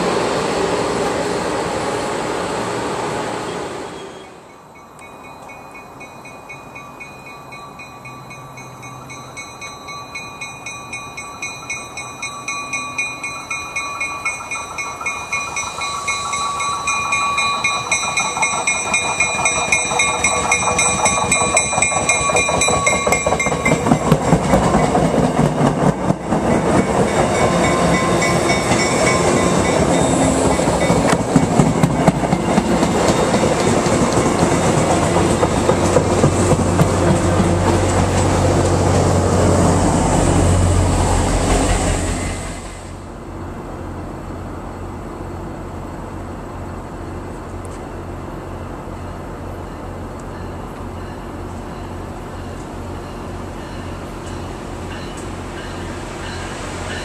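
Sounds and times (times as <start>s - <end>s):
high ringing whine: 3.5s - 25.0s
wheels clattering on rails: 4.8s - 42.1s.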